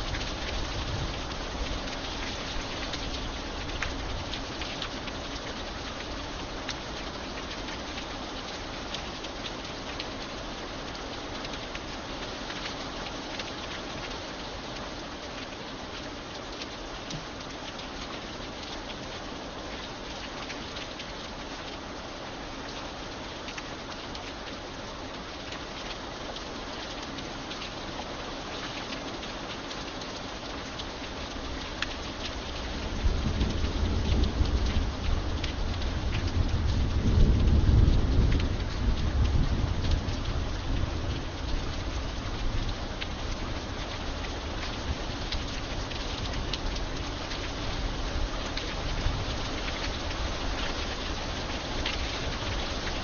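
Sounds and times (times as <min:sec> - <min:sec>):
steady rain hiss: 0:00.0 - 0:53.0
thunder rumble: 0:32.8 - 0:41.3.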